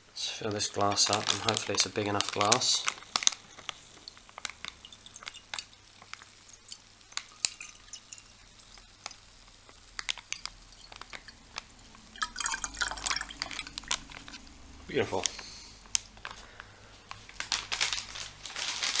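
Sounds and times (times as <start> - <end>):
plastic pouch crinkling: 0.6 - 19.0
drink pouring into a glass: 1.0 - 14.5.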